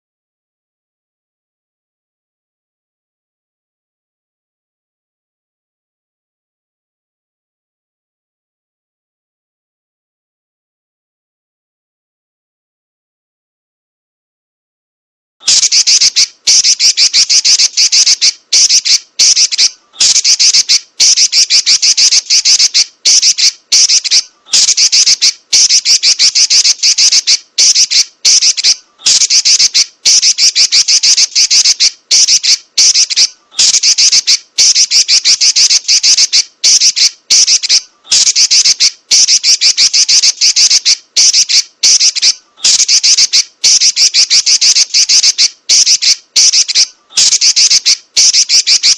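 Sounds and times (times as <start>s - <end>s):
bird chattering rattles: 15.5s - 48.9s.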